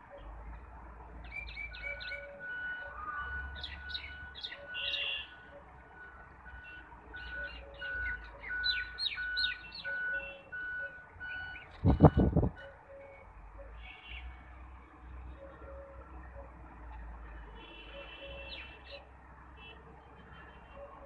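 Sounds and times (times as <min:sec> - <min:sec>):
small birds chirping: 0:03.5 - 0:05.4, 0:07.2 - 0:10.4.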